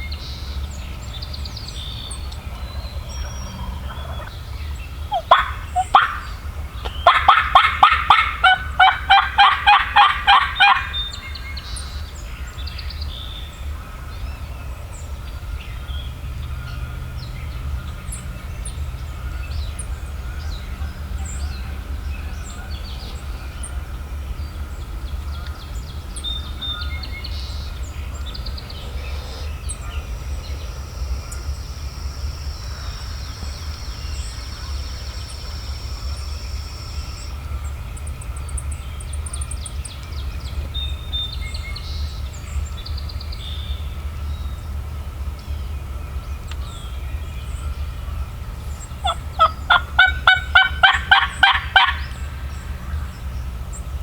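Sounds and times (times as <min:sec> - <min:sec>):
low background rumble: 0:00.0 - 0:54.0
songbirds chirping: 0:00.0 - 0:54.0
turkey gobbling: 0:02.5 - 0:04.4, 0:05.1 - 0:11.0, 0:28.6 - 0:30.5, 0:49.0 - 0:52.2.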